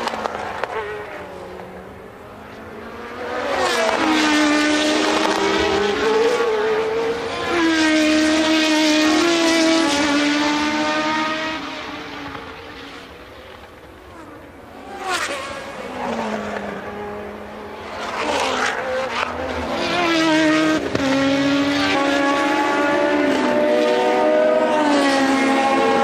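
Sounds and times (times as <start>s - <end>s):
race car engines: 0.0s - 26.0s.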